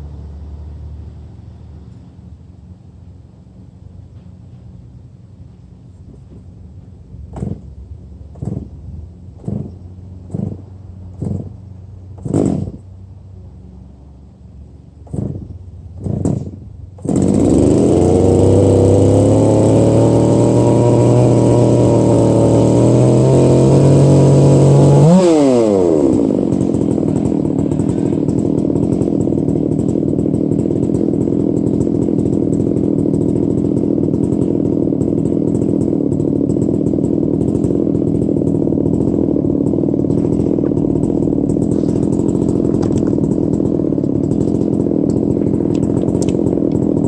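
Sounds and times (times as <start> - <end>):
chainsaw revving and idling: 5.9 - 13.0, 14.9 - 47.0.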